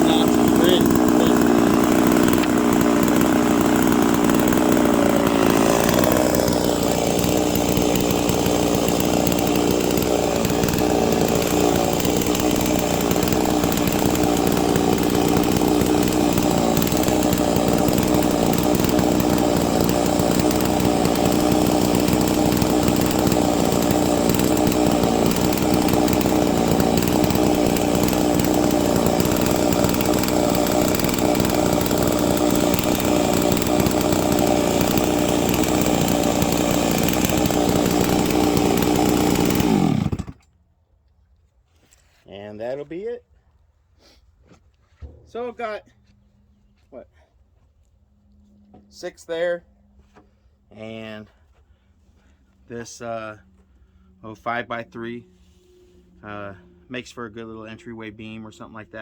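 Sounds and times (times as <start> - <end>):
chainsaw cutting log: 0.0 - 40.5.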